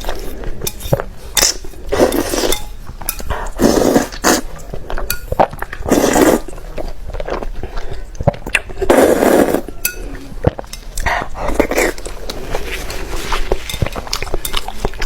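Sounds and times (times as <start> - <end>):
person chewing and crunching: 3.2 - 15.0
cutlery clinking on a dish: 5.1 - 5.5, 9.7 - 10.8.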